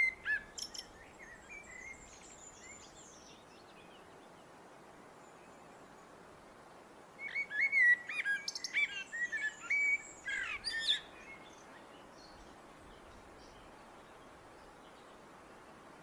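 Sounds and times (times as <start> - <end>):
blackbird singing: 0.0 - 3.4, 7.2 - 11.6.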